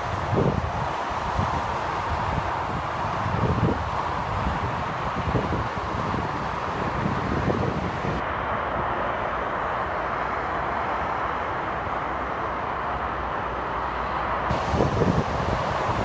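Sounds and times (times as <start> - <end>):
wind buffeting microphone: 0.0 - 8.2, 14.5 - 16.0
motorway traffic noise: 0.0 - 16.0.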